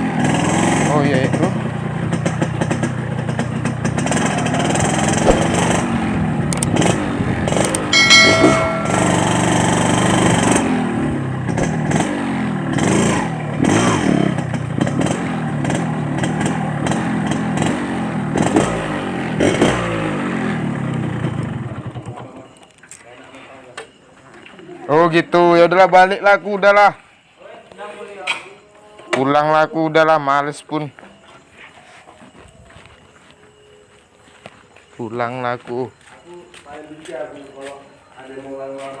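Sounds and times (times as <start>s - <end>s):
motorcycle engine revving: 0.0s - 7.8s, 10.5s - 22.0s.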